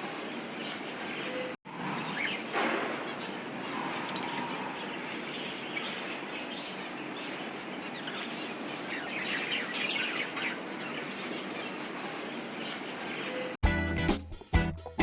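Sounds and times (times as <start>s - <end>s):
budgerigars chirping and chattering: 0.4s - 13.5s.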